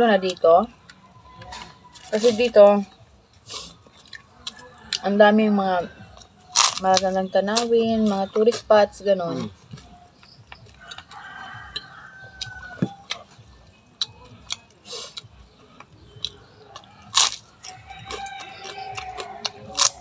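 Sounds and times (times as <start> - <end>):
rooster crowing: 10.7 - 13.0, 16.7 - 20.0.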